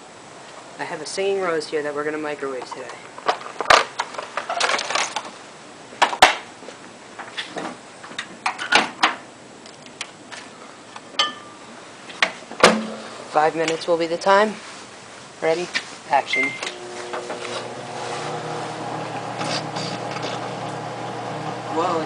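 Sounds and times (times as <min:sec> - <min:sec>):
clicks and knocks of objects: 0:02.6 - 0:05.4
short beep: 0:16.3 - 0:16.8.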